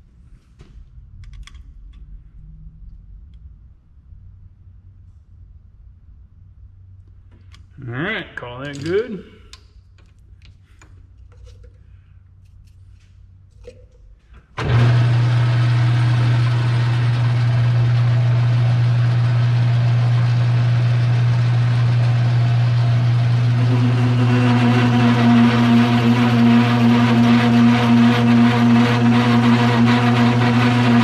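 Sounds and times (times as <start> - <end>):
electric motor humming: 14.6 - 31.0.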